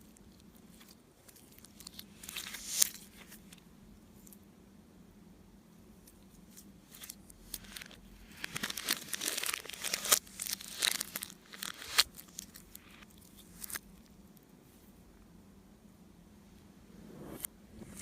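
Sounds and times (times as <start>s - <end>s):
slime crackling and tearing: 0.2s - 3.2s, 6.9s - 14.1s.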